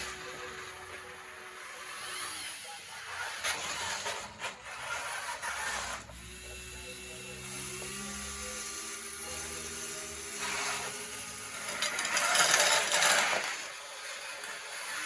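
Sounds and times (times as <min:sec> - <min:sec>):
small electric motors whining: 0:00.0 - 0:15.0.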